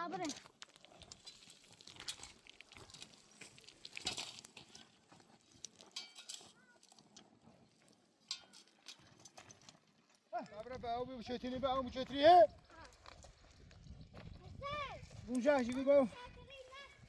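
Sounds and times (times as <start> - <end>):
clicks and clinks of animals moving: 0.1 - 10.6, 12.6 - 14.4.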